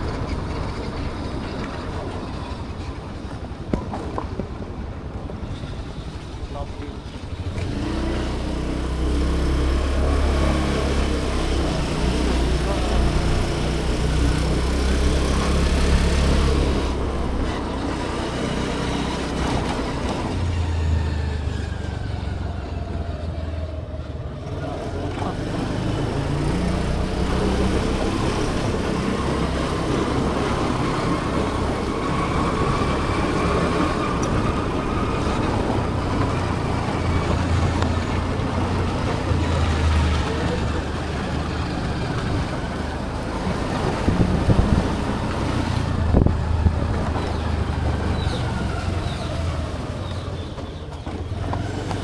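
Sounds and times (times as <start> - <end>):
vehicle engine and road noise: 0.0 - 52.0.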